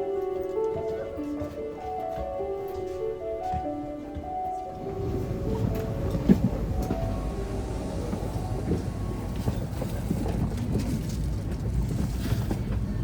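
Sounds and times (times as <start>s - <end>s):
vehicle rumble: 4.8s - 13.0s.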